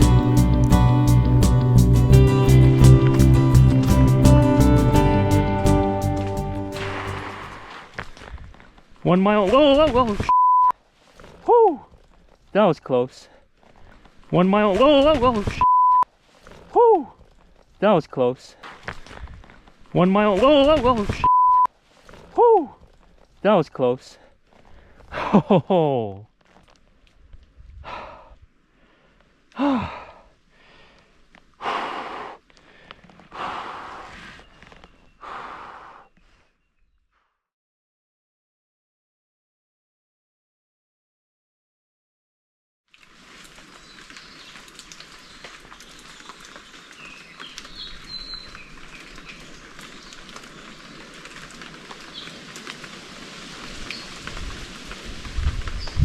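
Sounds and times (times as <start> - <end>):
light rain hissing: 0.0 - 9.1, 30.2 - 34.4, 42.9 - 56.0
person breathing hard: 27.8 - 34.6, 35.2 - 36.6
person groaning: 29.6 - 30.2
water drips ticking: 42.9 - 55.8.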